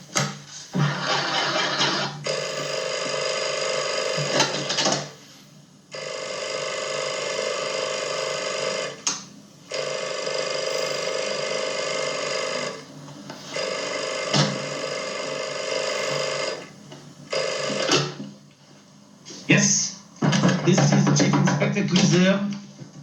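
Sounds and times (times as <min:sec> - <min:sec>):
telephone ringing: 0:00.8 - 0:05.2, 0:05.9 - 0:09.0, 0:09.7 - 0:18.4.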